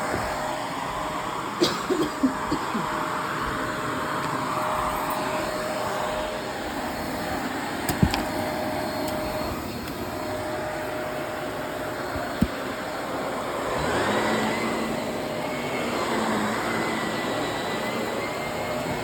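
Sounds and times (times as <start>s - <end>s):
vacuum cleaner on carpet: 0.0s - 19.0s.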